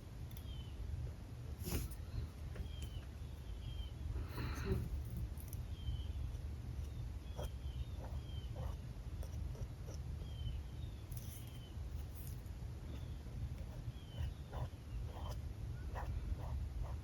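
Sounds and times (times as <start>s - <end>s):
marker scratching on paper: 13.6s - 17.0s.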